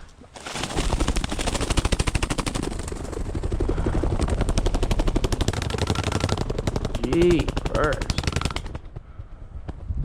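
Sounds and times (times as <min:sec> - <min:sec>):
vehicle engine clattering: 0:04.1 - 0:09.0.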